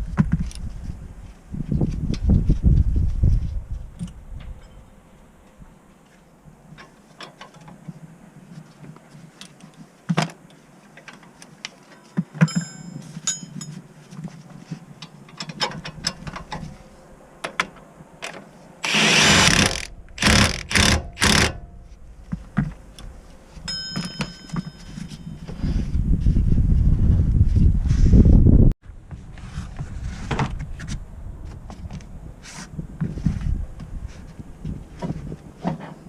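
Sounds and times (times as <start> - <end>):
metal tools clinking: 12.5 - 13.8, 23.7 - 25.5
power tool or spray bursts: 18.8 - 21.6.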